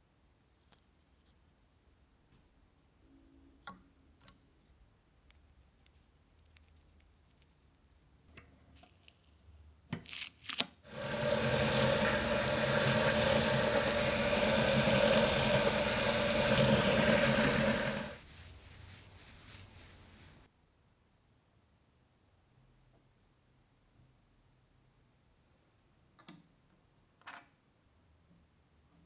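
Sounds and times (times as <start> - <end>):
small electric power tool running: 10.9 - 18.2
brief scrapes: 10.9 - 20.5.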